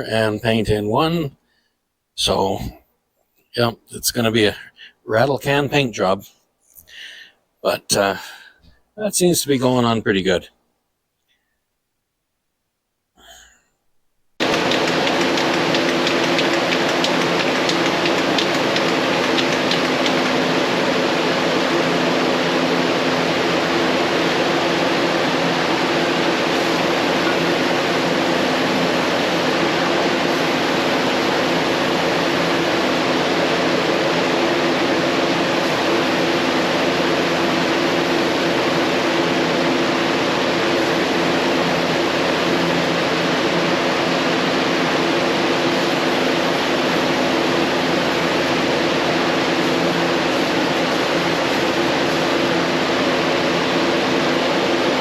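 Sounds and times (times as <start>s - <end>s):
machine hissing and humming: 14.4s - 55.0s.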